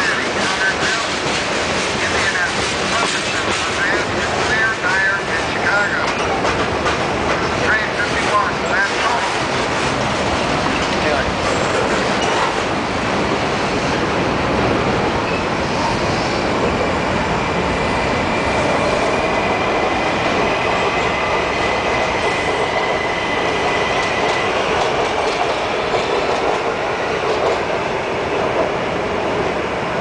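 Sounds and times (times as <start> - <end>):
train wheels rumbling and clattering: 0.0 - 30.0.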